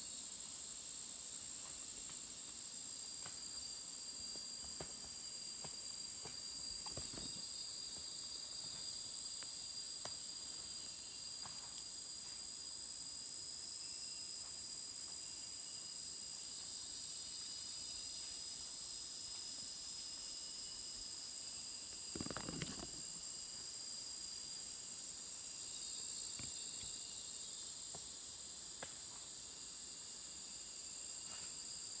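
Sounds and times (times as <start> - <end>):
insects chirring: 0.0 - 32.0
brief rustle: 22.0 - 23.1.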